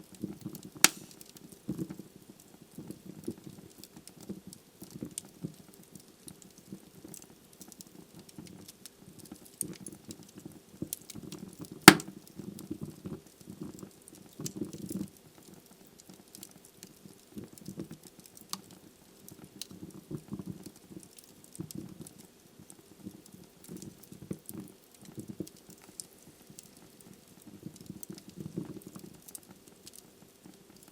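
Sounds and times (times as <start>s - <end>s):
logs crackling in fireplace: 0.8s - 1.3s, 11.9s - 12.1s, 23.2s - 30.9s.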